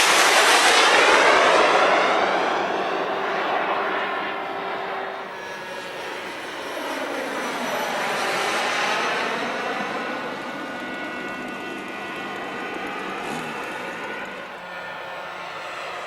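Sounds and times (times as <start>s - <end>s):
model jet engine whoosh: 0.0s - 16.0s.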